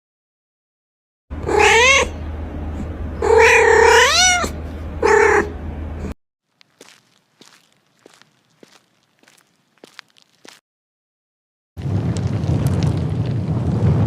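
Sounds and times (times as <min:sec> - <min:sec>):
cat meowing: 0:01.4 - 0:02.2, 0:03.2 - 0:05.5
steady low hum: 0:01.4 - 0:03.7, 0:04.5 - 0:10.0.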